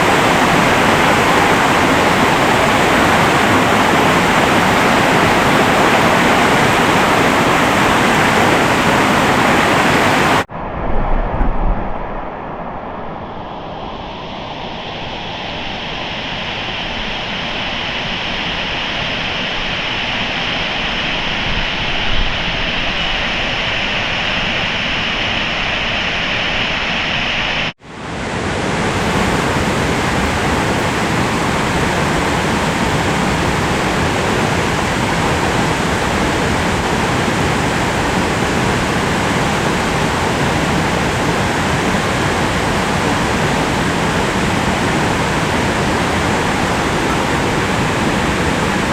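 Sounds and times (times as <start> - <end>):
mountain stream rushing: 0.0 - 10.5, 23.8 - 48.9.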